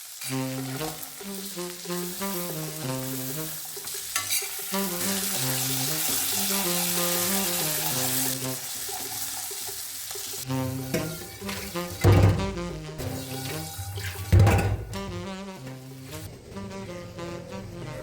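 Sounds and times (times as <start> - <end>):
food sizzling in a pan: 0.0 - 12.0, 13.0 - 14.3
instrumental background music: 0.2 - 18.0.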